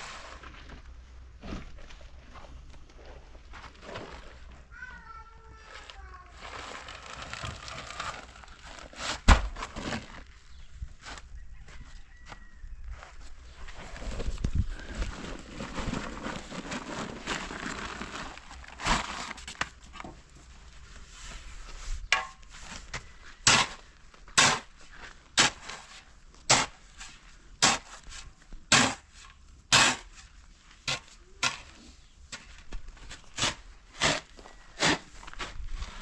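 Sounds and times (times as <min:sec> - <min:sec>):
scraping and rustling: 0:00.0 - 0:11.9, 0:12.9 - 0:26.1.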